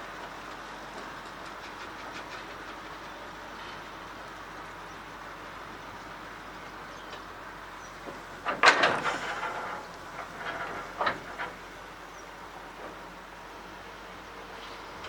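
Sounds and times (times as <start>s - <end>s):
metal clanks and knocks: 8.0s - 11.8s.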